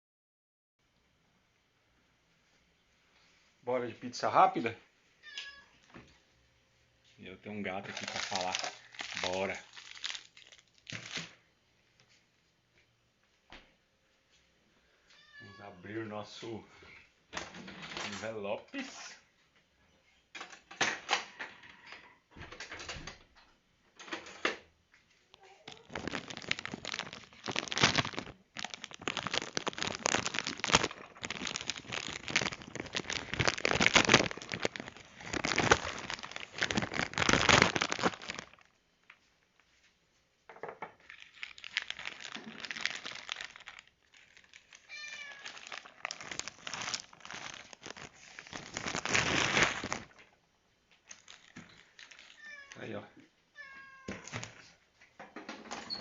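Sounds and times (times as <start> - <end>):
cat meowing: 5.2 - 5.8, 15.1 - 15.8, 44.8 - 45.6, 52.3 - 52.9, 53.5 - 54.4
food packaging crinkling: 7.7 - 11.4, 25.3 - 38.9, 41.0 - 50.4, 51.0 - 52.9.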